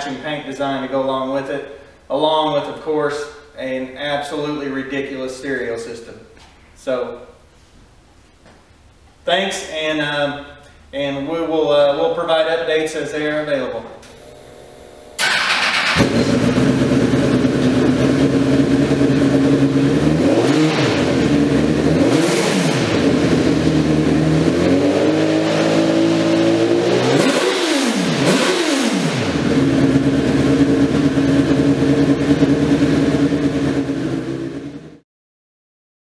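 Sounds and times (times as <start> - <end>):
engine idling and revving: 15.2 - 35.0.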